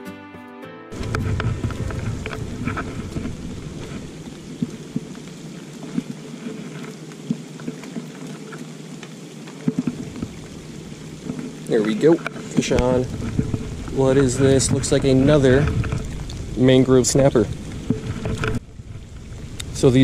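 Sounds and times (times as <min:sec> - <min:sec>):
low rumble: 0:00.9 - 0:05.6, 0:12.6 - 0:20.0
light rain pattering: 0:00.9 - 0:20.0
water drops ticking: 0:19.1 - 0:19.8.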